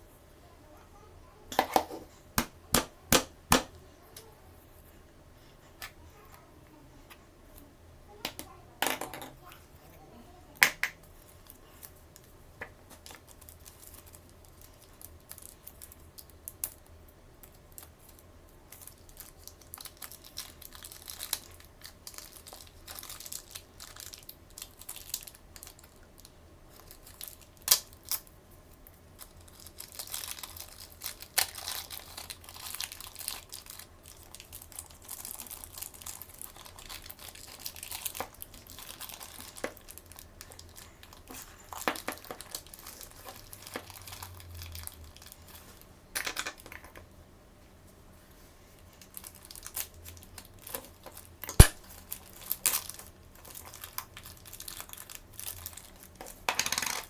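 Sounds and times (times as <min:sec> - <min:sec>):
toy packaging crinkling: 0:18.8 - 0:28.3, 0:29.2 - 0:45.6, 0:49.0 - 0:57.0
sharp clicks and taps: 0:51.6 - 0:51.8.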